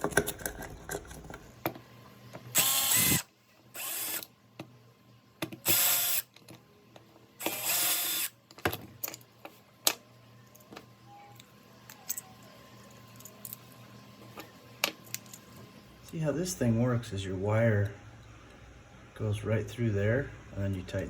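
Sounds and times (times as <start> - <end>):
parts being handled: 0.0 - 3.2, 5.4 - 16.2
cordless drill bursts: 2.6 - 4.2, 5.6 - 6.2, 7.4 - 8.3.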